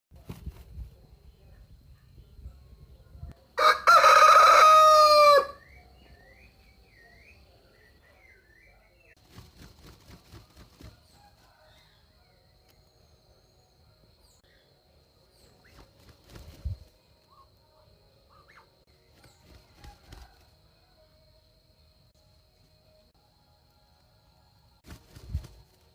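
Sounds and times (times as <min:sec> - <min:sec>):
rooster crowing: 0:03.6 - 0:05.7.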